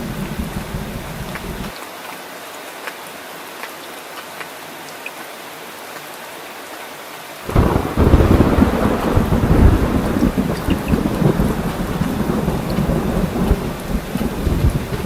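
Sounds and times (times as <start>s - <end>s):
thunder clap and rumble: 0.0s - 1.7s, 7.5s - 15.0s
steady rain: 0.0s - 15.0s.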